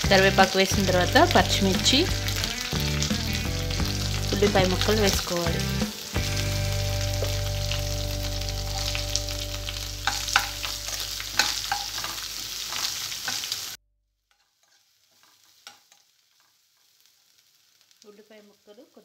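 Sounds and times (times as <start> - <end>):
onions sizzling in hot oil: 0.0 - 19.0
steel spoon scraping a wok: 10.0 - 16.6.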